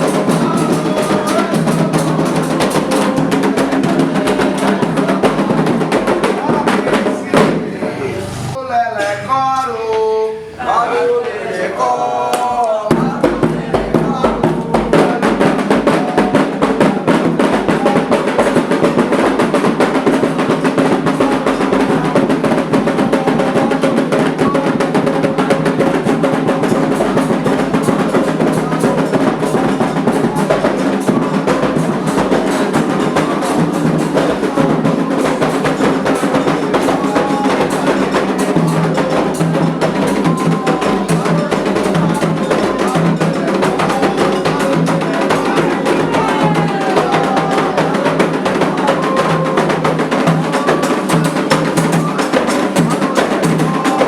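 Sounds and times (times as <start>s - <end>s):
hand drums playing: 0.0s - 54.0s
struck bell: 26.4s - 46.3s.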